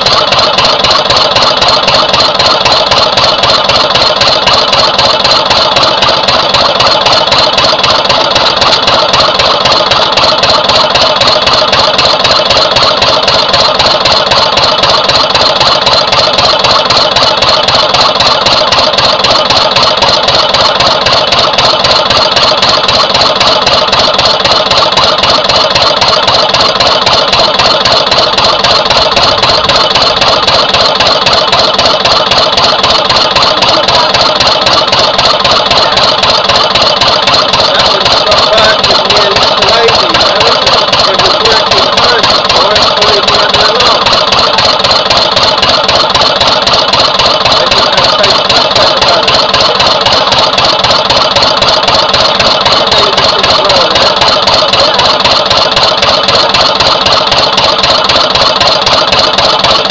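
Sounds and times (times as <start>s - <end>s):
diesel engine running steadily: 0.0s - 59.9s.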